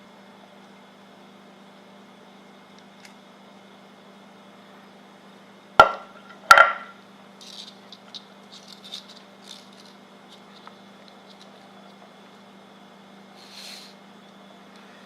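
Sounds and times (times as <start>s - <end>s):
sharp ringing knocks: 5.8s - 6.9s
tools clicking and rattling: 7.4s - 11.6s.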